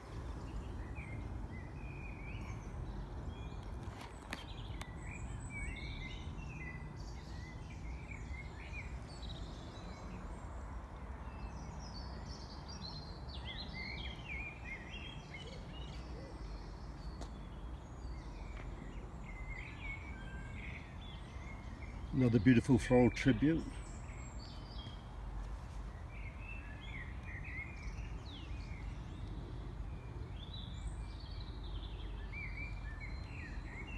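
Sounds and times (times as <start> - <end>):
birds chirping and singing: 11.2 - 25.1, 25.9 - 33.9.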